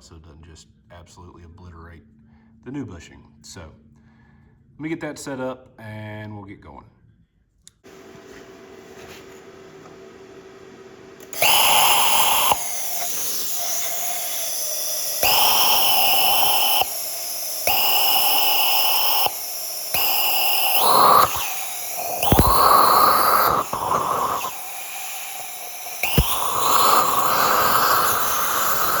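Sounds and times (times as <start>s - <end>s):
plasma torch hissing arc: 11.3s - 29.0s
rush of air: 11.4s - 29.0s.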